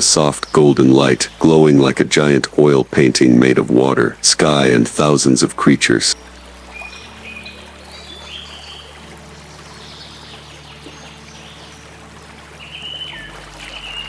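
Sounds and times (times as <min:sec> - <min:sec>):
low steady drone: 0:00.0 - 0:14.0
water trickling: 0:00.0 - 0:14.0
bird whistles and chirps: 0:12.6 - 0:14.0.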